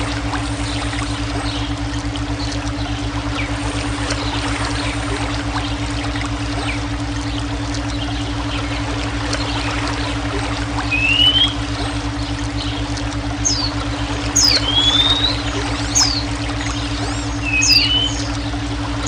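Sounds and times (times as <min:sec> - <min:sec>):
low humming tone: 0:00.0 - 0:19.0
water flowing: 0:00.0 - 0:19.0
bird whistles and chirps: 0:10.9 - 0:11.6, 0:13.4 - 0:13.7, 0:14.4 - 0:16.2, 0:17.1 - 0:18.3.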